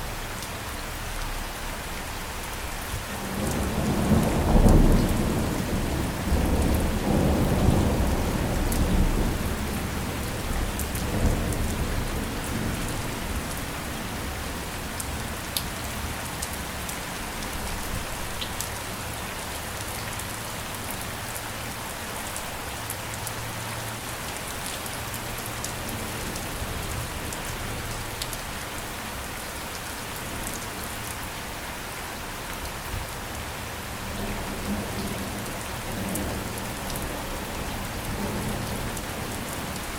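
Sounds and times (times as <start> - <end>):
steady rain hissing: 0.0 - 39.9
low rumble of thunder: 3.1 - 16.2, 34.0 - 39.9.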